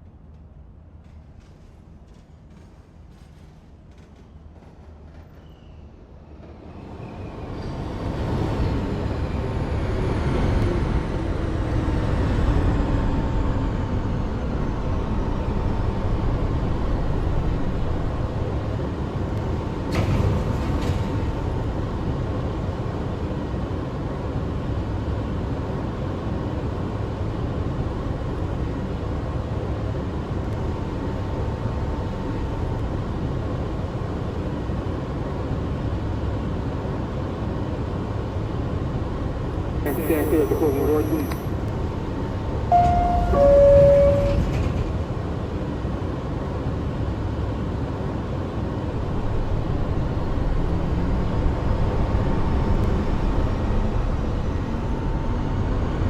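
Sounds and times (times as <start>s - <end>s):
subway train rumbling: 0.0s - 56.0s
falling whines: 42.7s - 44.6s.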